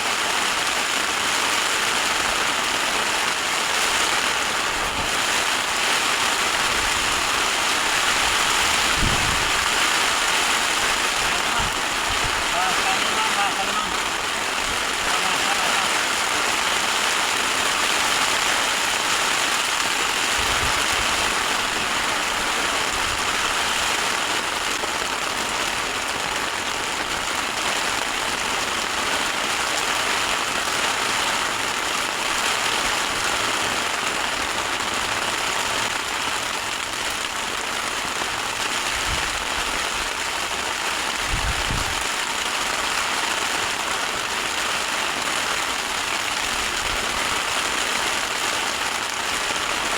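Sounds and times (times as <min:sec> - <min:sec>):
heavy rain on a tent: 0:00.0 - 0:49.9.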